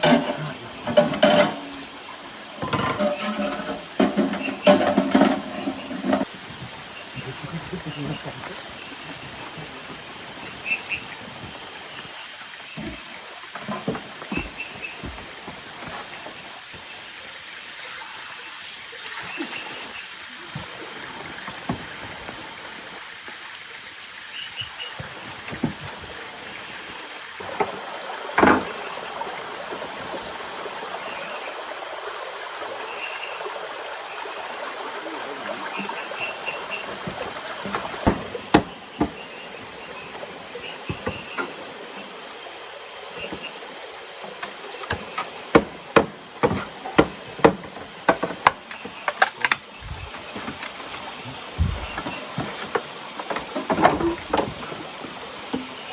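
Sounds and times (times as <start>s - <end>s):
rain and running water: 0.0s - 55.9s
sharp taps and knocks: 44.4s - 51.0s.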